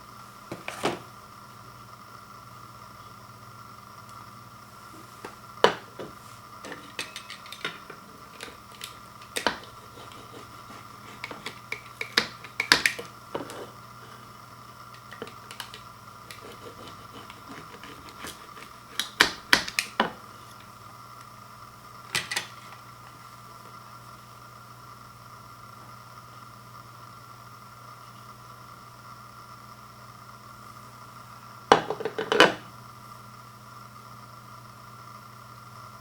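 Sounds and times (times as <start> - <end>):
steady hum: 0.0 - 36.0
dishes and cutlery clinking: 6.7 - 10.4.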